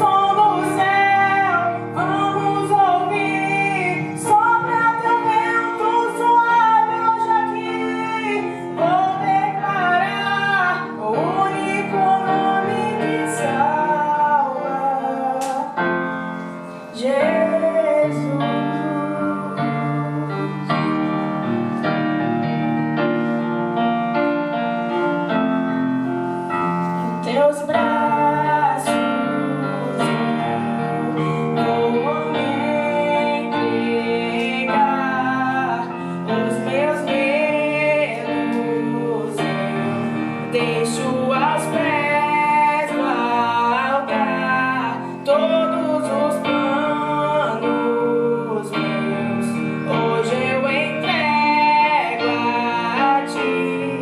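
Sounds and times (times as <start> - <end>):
woman singing: 0.0 - 21.4, 27.0 - 54.0
piano accompaniment: 0.0 - 54.0.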